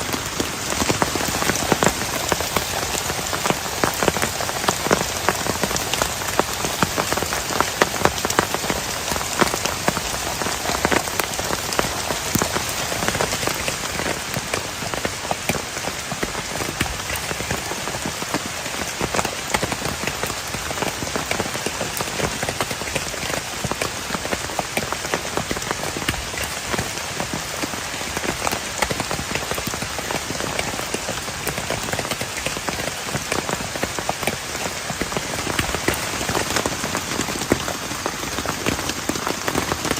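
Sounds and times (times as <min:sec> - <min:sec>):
heavy rain with drop hits: 0:00.0 - 0:39.9.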